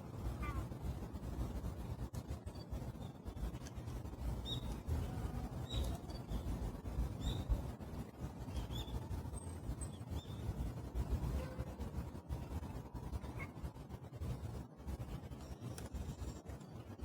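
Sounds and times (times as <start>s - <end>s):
wind rumble on microphone: 0.0s - 17.0s
bird chirps: 7.2s - 7.6s.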